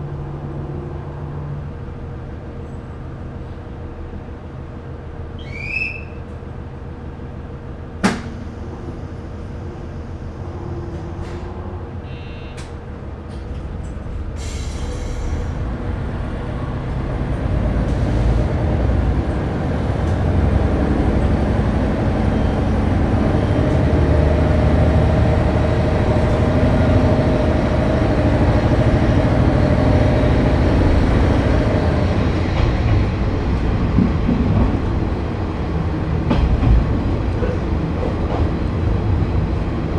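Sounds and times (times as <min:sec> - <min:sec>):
diesel railcar engine rumble: 0:00.0 - 0:39.9
air hiss: 0:14.4 - 0:15.6.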